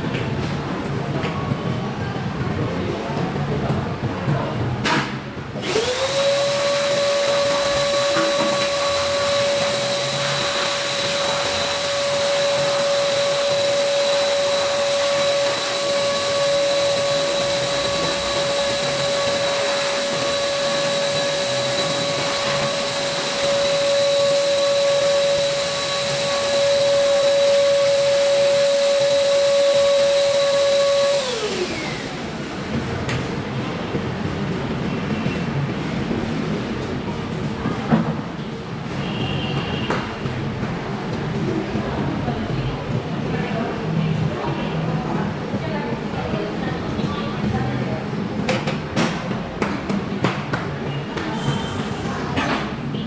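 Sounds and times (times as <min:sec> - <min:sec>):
electric blower motor whining: 0:05.6 - 0:32.8.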